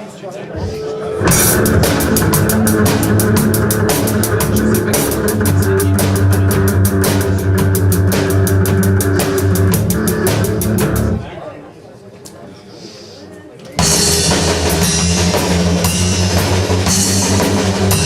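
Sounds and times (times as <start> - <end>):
rock band playing: 0.9 - 11.3, 13.8 - 18.0
drum kit fast beat: 1.2 - 11.2, 13.8 - 18.0.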